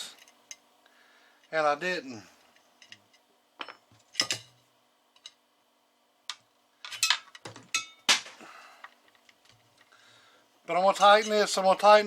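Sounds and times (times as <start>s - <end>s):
small metal parts clinking: 6.8s - 8.0s.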